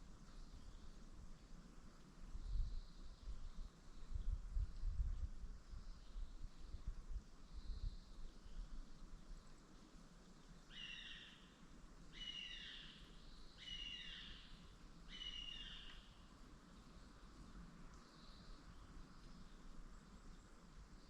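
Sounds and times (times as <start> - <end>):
bird calling: 10.7 - 11.5, 12.1 - 16.2.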